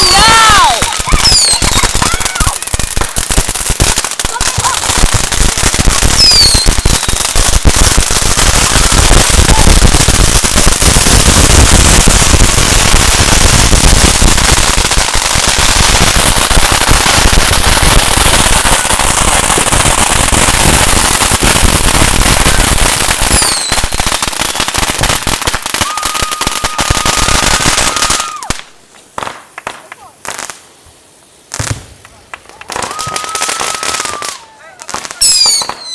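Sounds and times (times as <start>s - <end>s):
firecrackers popping rapidly: 0.0s - 30.8s, 31.4s - 35.9s
falling whistle: 1.2s - 1.8s, 6.2s - 7.2s, 35.2s - 35.9s.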